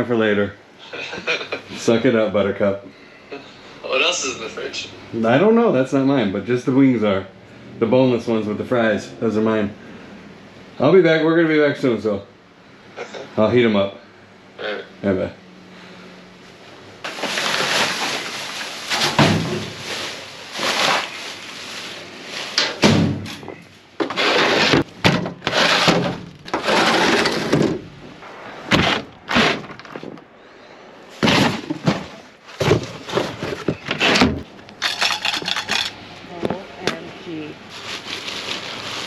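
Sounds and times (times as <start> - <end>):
rummaging rustles and knocks: 17.0 - 27.9, 31.1 - 35.9.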